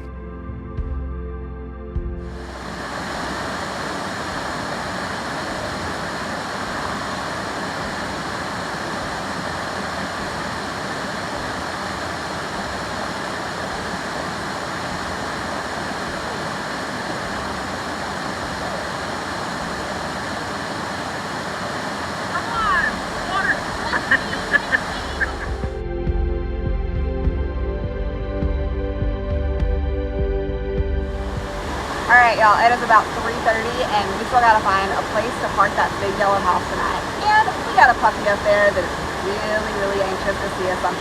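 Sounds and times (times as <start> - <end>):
waterfall rushing: 2.4 - 25.8, 31.1 - 41.0.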